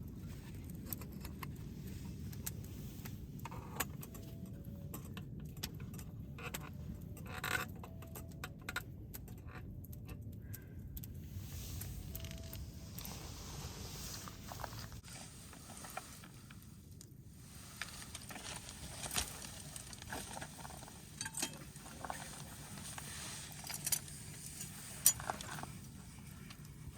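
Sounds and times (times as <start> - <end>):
steady low rumble: 0.0 - 26.9
light metallic clinks and jingles: 17.8 - 26.9.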